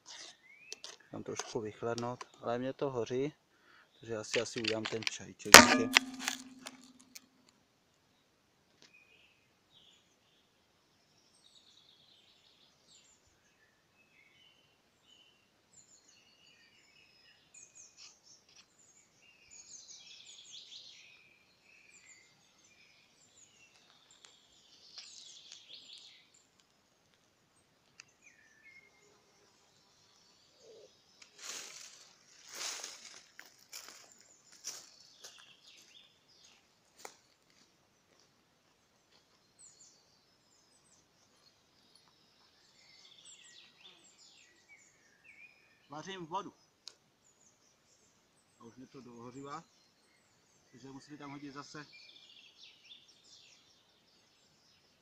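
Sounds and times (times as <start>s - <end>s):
songbirds chirping and singing: 39.4s - 55.0s.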